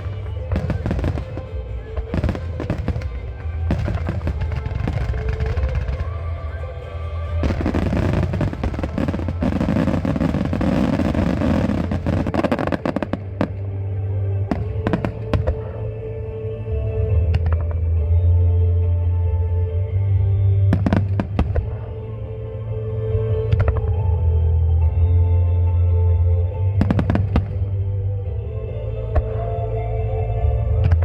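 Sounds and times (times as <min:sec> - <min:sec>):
fireworks bursts and crackle: 0:00.0 - 0:16.0, 0:20.6 - 0:22.1, 0:26.8 - 0:27.8
music with held notes: 0:00.0 - 0:31.0.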